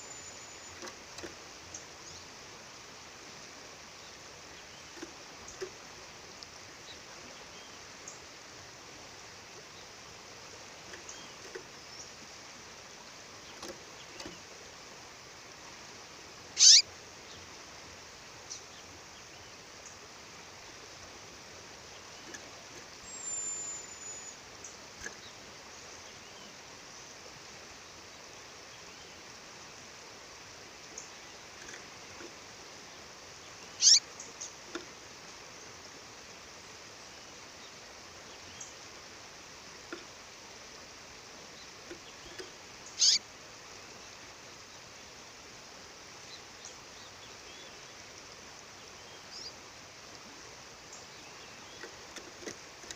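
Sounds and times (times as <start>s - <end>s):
bird calling: 16.6s - 16.9s, 23.0s - 24.4s, 33.7s - 34.5s, 42.3s - 43.2s.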